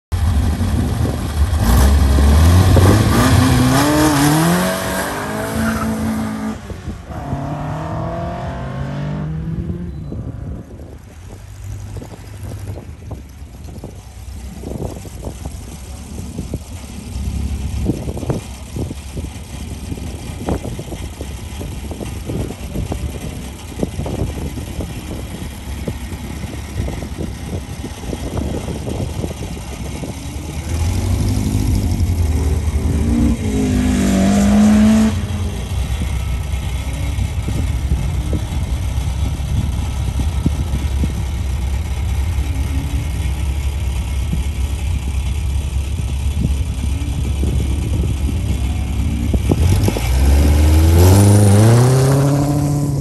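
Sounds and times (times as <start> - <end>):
sports car engine revving: 0.2 - 10.8, 26.0 - 36.0, 45.9 - 53.0.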